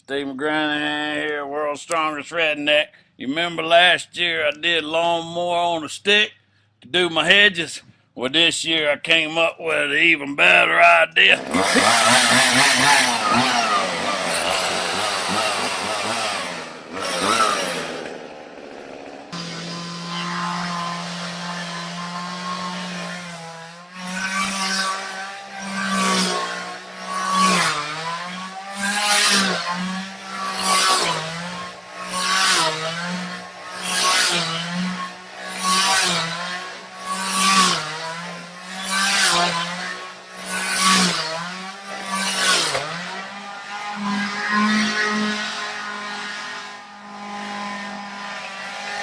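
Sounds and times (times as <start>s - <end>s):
chainsaw cutting at high revs: 10.4s - 49.0s.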